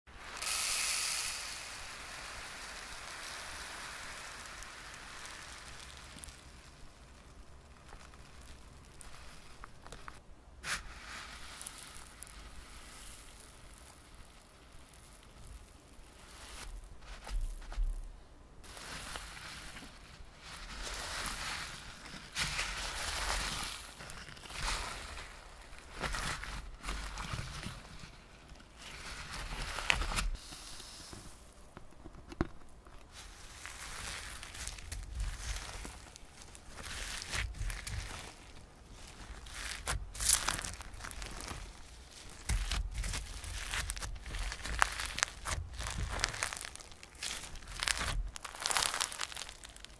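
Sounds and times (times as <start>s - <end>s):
slime crackling and squishing: 0.2s - 31.7s, 32.6s - 49.9s
slime popping: 32.9s - 49.9s.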